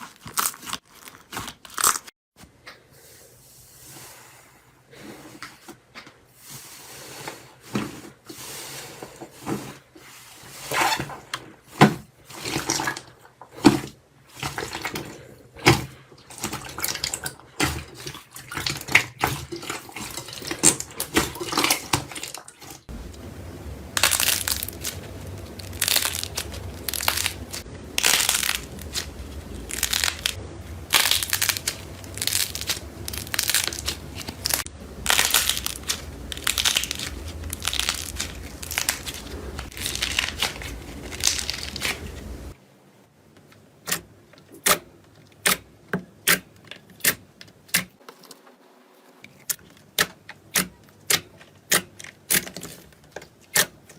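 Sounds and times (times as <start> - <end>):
crunchy slime crackling: 23.9 - 42.6.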